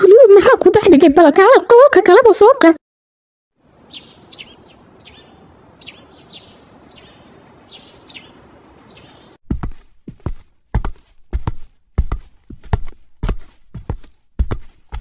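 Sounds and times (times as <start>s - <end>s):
birds chirping: 3.8s - 9.4s
footsteps: 9.5s - 15.0s.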